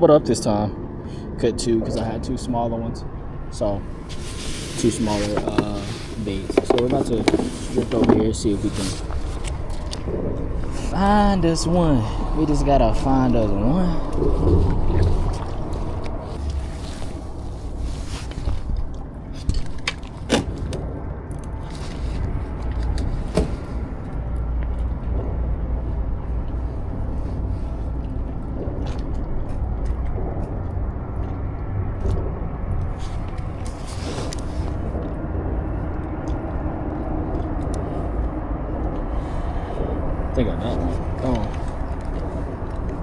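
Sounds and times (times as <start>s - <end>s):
low rumble on water: 0.0s - 43.0s
kayak gear knocking: 6.5s - 8.4s.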